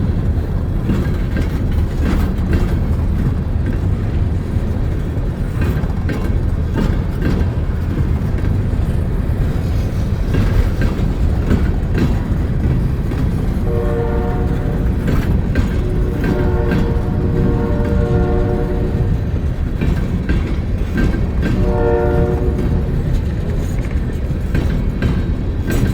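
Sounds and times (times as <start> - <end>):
train rumbling: 0.0 - 25.9
wheels clicking over rail joints: 0.0 - 25.9
train horn: 13.6 - 19.3, 21.4 - 23.2.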